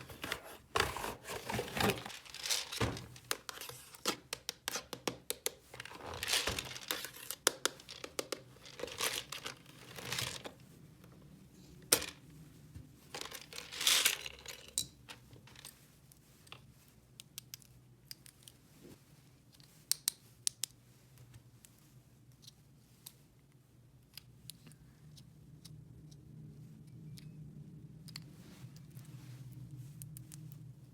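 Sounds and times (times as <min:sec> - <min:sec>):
packaging crinkling and tearing: 0:00.0 - 0:04.2, 0:05.8 - 0:08.0, 0:08.6 - 0:10.5.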